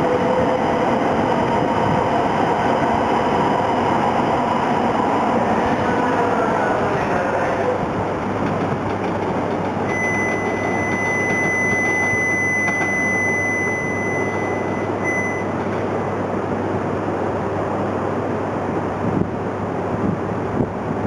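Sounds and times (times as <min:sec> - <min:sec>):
train rushing along track: 0:00.0 - 0:21.0
high-pitched tone: 0:09.9 - 0:15.6.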